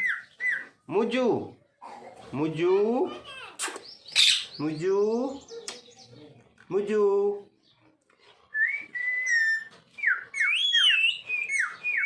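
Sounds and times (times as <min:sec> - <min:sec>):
parrot whistling: 0:00.0 - 0:00.8, 0:08.6 - 0:12.0.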